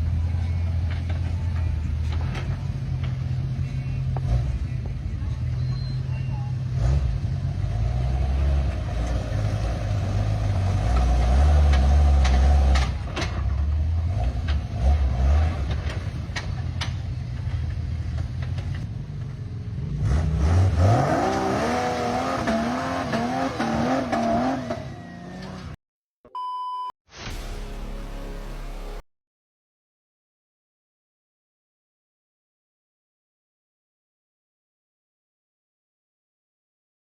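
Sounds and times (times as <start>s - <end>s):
vehicle engine rumbling: 0.0s - 25.8s
short electronic beep: 5.5s - 6.5s, 26.3s - 29.0s.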